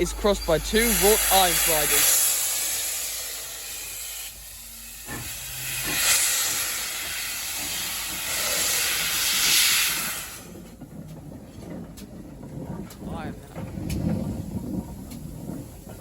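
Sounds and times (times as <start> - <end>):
steam locomotive hissing: 0.0 - 10.9.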